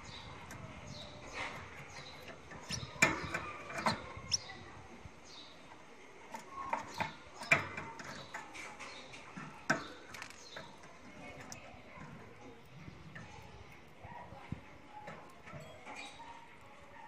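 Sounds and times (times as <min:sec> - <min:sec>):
cage birds chirping: 0:00.0 - 0:17.0
sharp clicks and knocks: 0:01.3 - 0:04.2.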